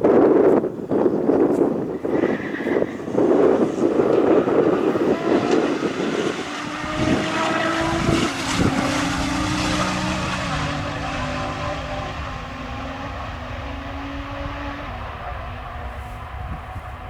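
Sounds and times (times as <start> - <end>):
sports car engine running: 3.6 - 17.0.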